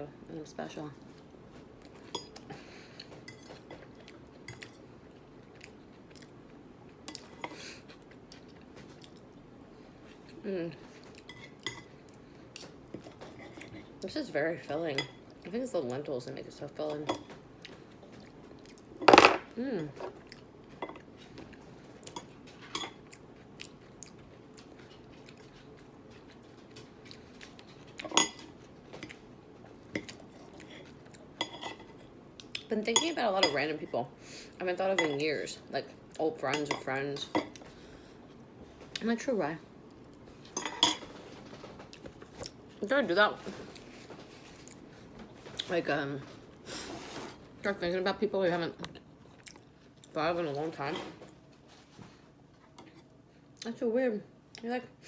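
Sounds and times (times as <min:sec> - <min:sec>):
chewing with crunch: 0:01.8 - 0:09.4, 0:20.2 - 0:31.3, 0:49.2 - 0:50.2.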